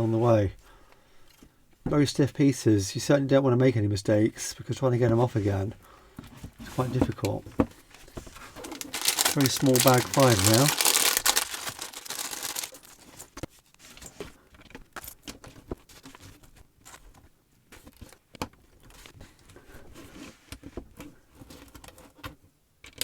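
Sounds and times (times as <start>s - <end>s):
plastic bag crinkling: 7.8s - 13.2s
plastic bricks clicking and rattling: 7.9s - 12.9s.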